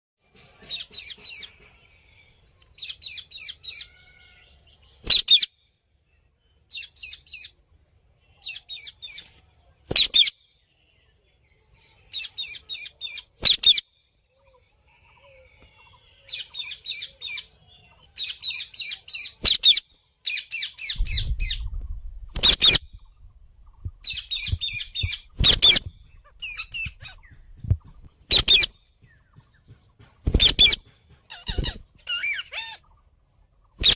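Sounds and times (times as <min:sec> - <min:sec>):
parakeets chattering chirps: 0:24.0 - 0:28.7.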